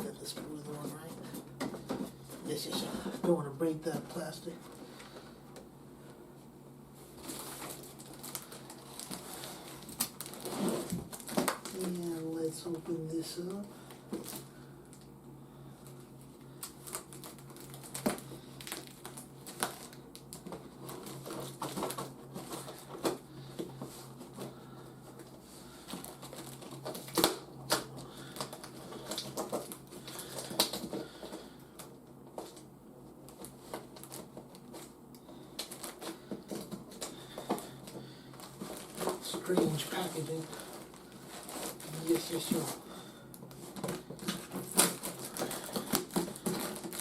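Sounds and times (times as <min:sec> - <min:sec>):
faint low hum: 0:00.0 - 0:47.0
packaging being opened by hand: 0:07.2 - 0:15.1, 0:15.8 - 0:32.7, 0:33.3 - 0:47.0.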